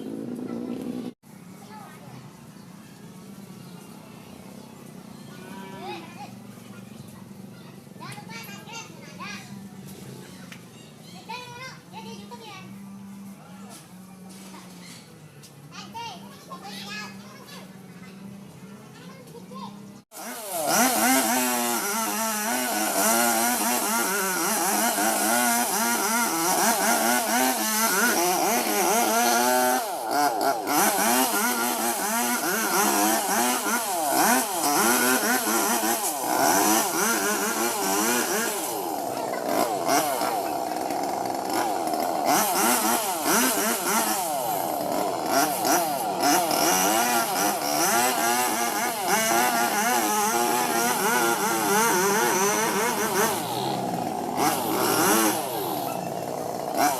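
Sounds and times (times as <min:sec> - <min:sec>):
chainsaw cutting into tree: 0:20.2 - 0:56.9.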